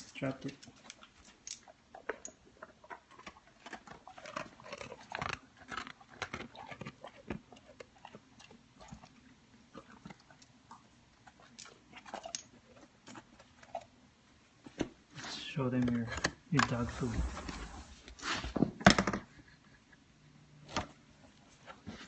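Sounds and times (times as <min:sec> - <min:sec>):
dog crunching and smacking: 0:00.0 - 0:15.0.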